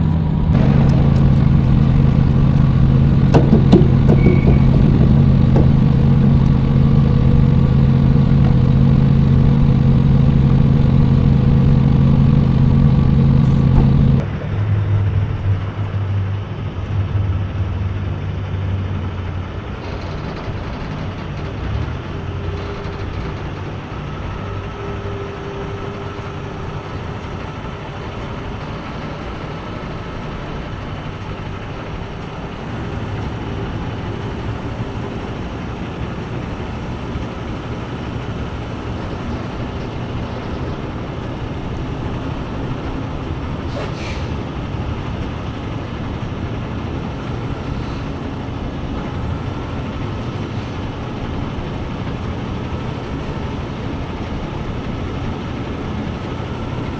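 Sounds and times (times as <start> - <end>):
truck engine and road noise: 0.0 - 56.9
sharp knock: 0.6 - 7.2.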